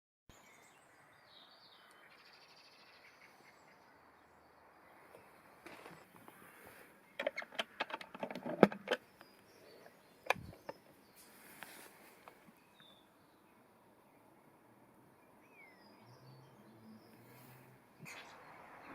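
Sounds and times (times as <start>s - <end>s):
birds chirping: 0.3s - 18.9s
sharp clicks and knocks: 7.2s - 9.4s, 10.2s - 10.9s.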